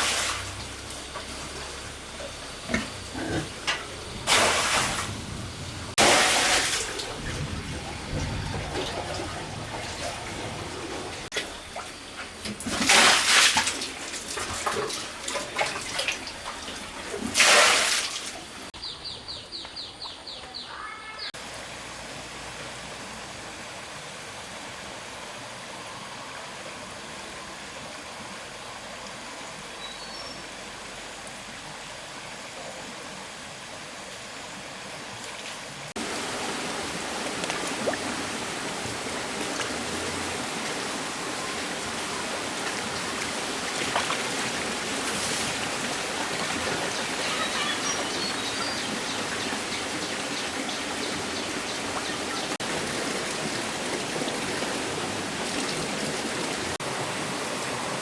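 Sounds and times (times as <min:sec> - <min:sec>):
running water rushing: 0:00.0 - 0:18.8, 0:20.0 - 0:58.0.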